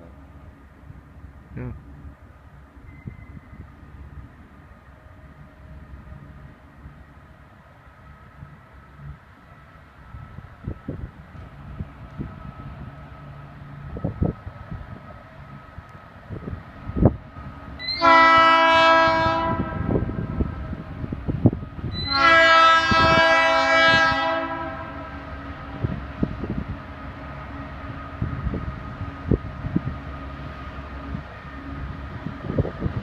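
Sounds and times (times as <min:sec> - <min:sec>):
passing train rumble: 0:00.0 - 0:33.0
locomotive air horn blasts: 0:17.8 - 0:20.0, 0:22.0 - 0:25.2.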